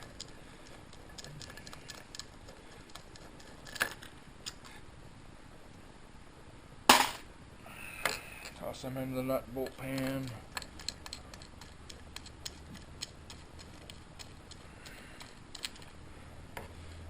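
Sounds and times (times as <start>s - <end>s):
faint tool ticks and clicks: 9.6s - 16.0s.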